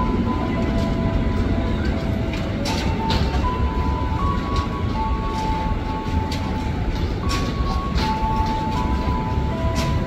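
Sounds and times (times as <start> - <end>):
electric train rumbling: 0.0 - 10.0.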